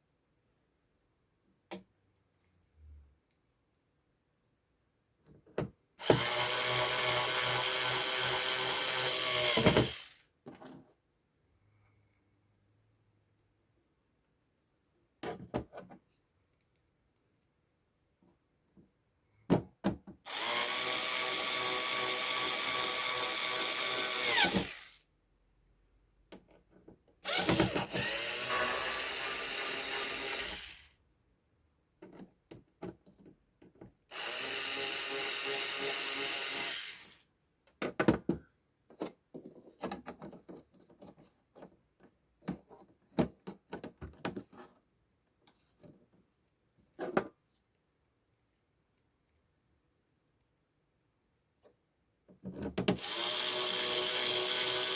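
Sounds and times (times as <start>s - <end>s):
electric screwdriver running: 6.0s - 10.2s, 20.3s - 25.0s, 27.3s - 30.9s, 34.1s - 37.2s, 53.0s - 54.9s.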